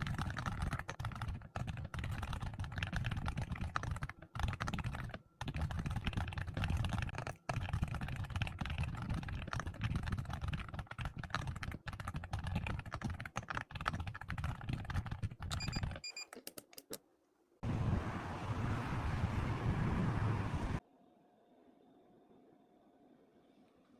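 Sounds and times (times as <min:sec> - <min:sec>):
fast typing on keyboard: 0:00.0 - 0:16.0
steady rushing noise: 0:17.6 - 0:20.8.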